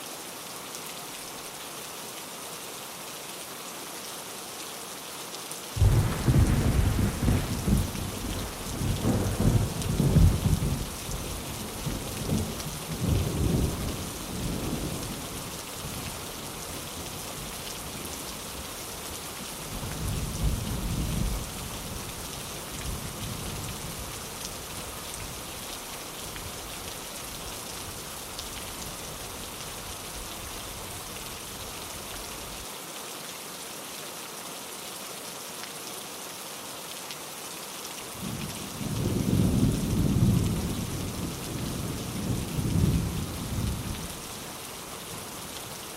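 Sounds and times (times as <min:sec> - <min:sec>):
heavy rain: 0:00.0 - 0:45.9
rolling thunder rumble: 0:05.8 - 0:15.0.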